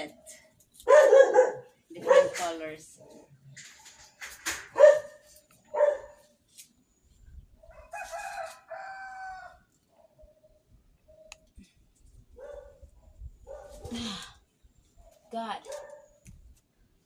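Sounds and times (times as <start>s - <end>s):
dog barking: 0.8s - 2.5s, 4.7s - 6.2s, 12.4s - 13.9s, 15.0s - 16.2s
rooster crowing: 7.7s - 9.7s.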